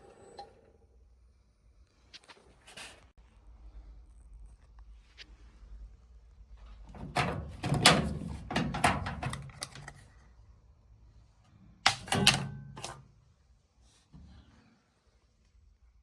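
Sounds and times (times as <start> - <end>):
screwdriver clicking and knocking: 11.9 - 13.0.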